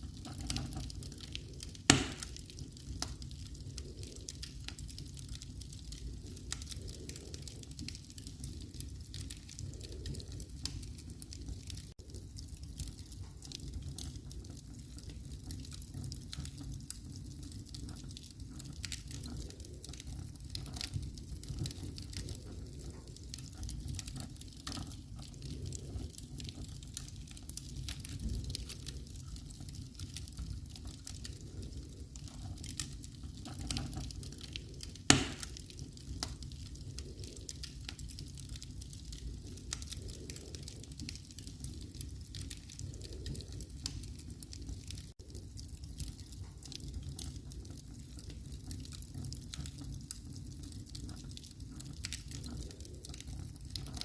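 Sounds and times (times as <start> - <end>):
wood fire crackling: 0.0 - 54.0
loud fire pop: 1.9 - 2.3, 35.1 - 35.5.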